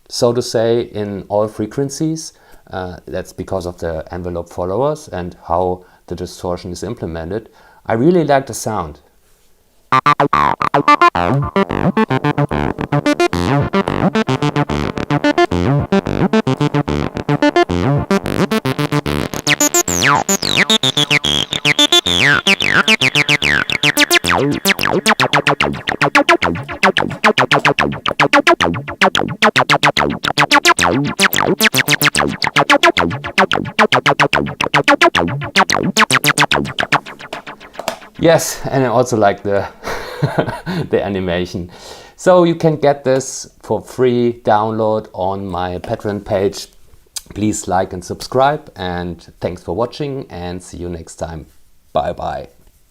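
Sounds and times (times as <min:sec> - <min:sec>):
distorted acid synth bassline: 0:10.0 - 0:38.5
resonant filter sweep falling: 0:10.0 - 0:39.2.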